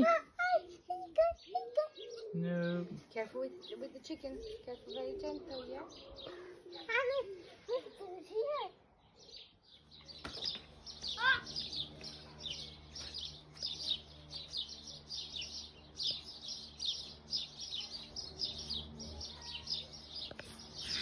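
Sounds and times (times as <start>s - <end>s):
small bird chirping rapidly: 9.0s - 21.0s
steady low hum: 9.6s - 21.0s.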